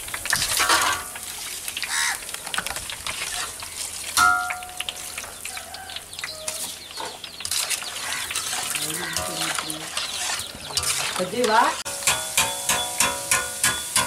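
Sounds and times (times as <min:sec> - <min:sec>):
food sizzling in hot oil: 0:00.0 - 0:14.0
metal ladle stirring: 0:06.2 - 0:14.0.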